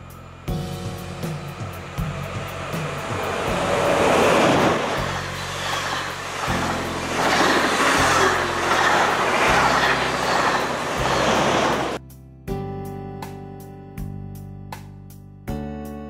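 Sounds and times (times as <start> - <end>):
background music low held notes: 0.0 - 16.0
train wheels rushing on rails: 0.9 - 12.0.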